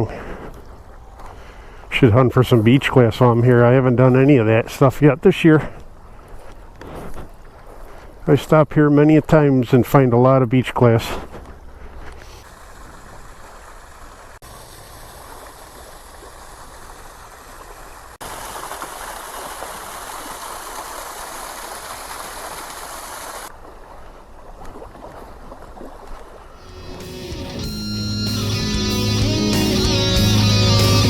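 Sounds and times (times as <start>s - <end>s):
small waves washing on beach: 11.2s - 26.6s.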